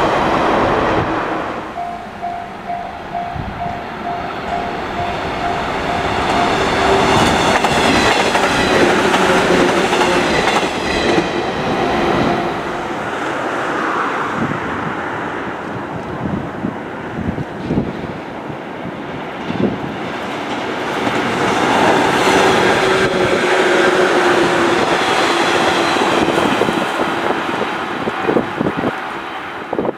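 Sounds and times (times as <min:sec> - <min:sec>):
electric train passing: 0:00.0 - 0:29.9
repeating pulsing tone: 0:01.7 - 0:08.5
wheels clacking over rail joints: 0:01.8 - 0:13.0.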